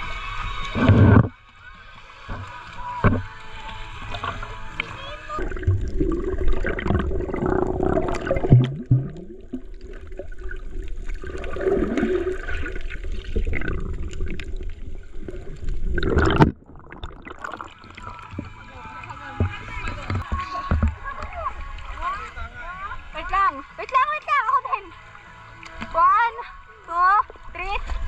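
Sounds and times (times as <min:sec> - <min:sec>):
water splashing and sloshing: 0:00.0 - 0:28.0.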